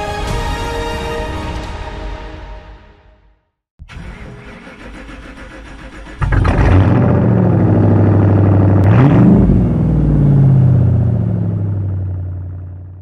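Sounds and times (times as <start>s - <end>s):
car engine revving: 3.9s - 13.0s.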